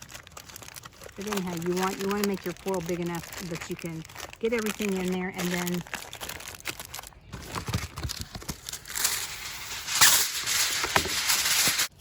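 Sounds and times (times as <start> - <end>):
aluminum foil crinkling: 0.0 - 12.0.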